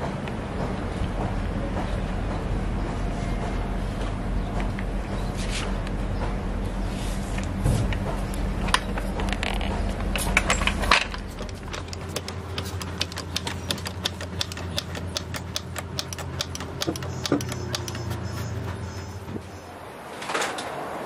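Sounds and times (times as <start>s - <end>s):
steady low hum: 0.0s - 20.0s
rapid mechanical clicking: 7.9s - 19.4s.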